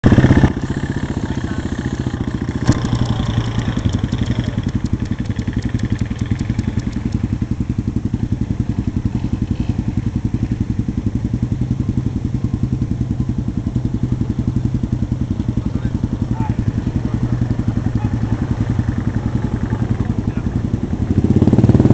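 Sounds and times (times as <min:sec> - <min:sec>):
motorcycle engine idling: 0:00.0 - 0:21.9
light rapid ticking: 0:00.6 - 0:08.2
sharp click: 0:02.6 - 0:07.2.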